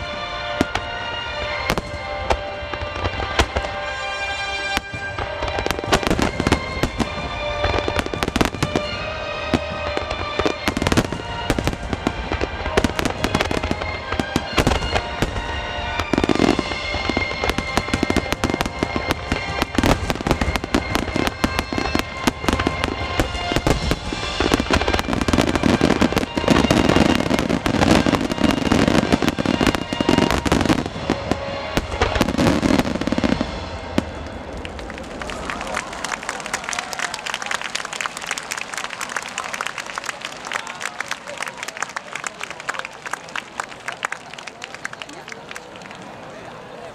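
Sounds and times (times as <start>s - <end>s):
music: 0.0s - 35.0s
fireworks bursting and crackling: 0.0s - 46.2s.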